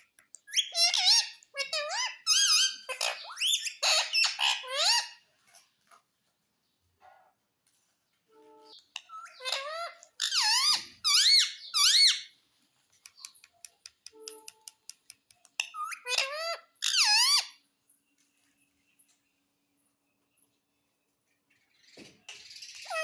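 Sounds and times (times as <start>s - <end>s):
parrot screeching: 0.5s - 5.2s, 9.0s - 12.3s, 15.7s - 17.6s, 22.8s - 23.0s.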